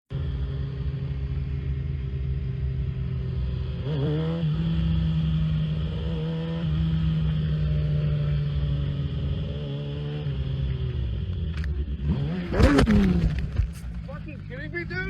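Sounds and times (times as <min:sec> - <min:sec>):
vehicle engine idling: 0:12.8 - 0:15.0.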